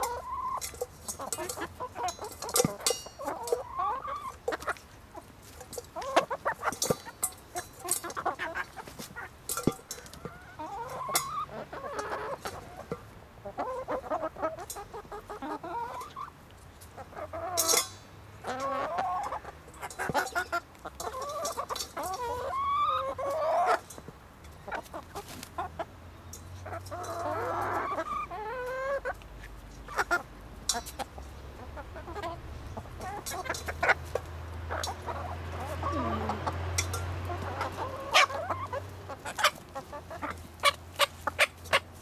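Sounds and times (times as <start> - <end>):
hens squawking: 0.0 - 0.6, 3.2 - 4.8, 18.4 - 23.8, 26.6 - 29.2, 34.7 - 41.9
hens clucking: 0.0 - 25.9, 26.5 - 42.0.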